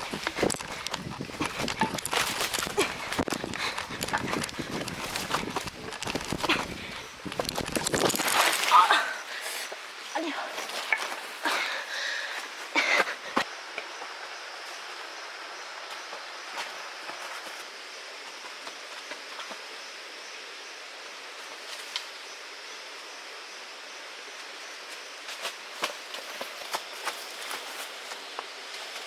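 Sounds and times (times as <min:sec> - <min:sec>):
knocks and rustles: 0:00.0 - 0:08.8
steady outdoor hiss: 0:00.0 - 0:29.0.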